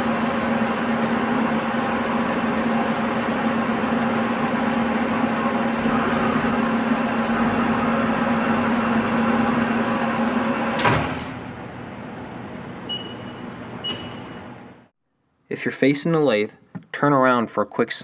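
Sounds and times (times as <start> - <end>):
lathe humming: 0.0 - 12.9
machine clunk: 10.6 - 11.6.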